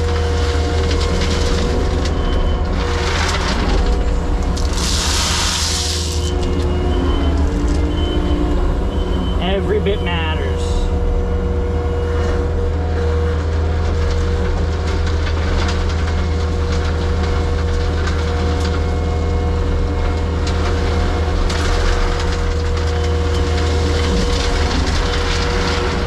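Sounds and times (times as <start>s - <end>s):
excavator diesel engine running: 6.3s - 13.8s.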